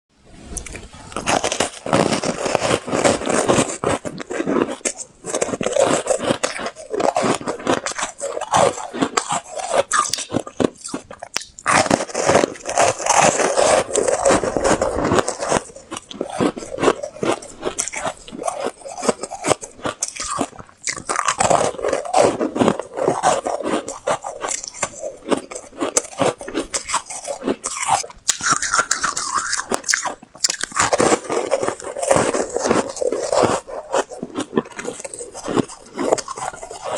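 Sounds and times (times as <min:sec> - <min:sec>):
crunching bites of ice balls: 0:01.1 - 0:36.9.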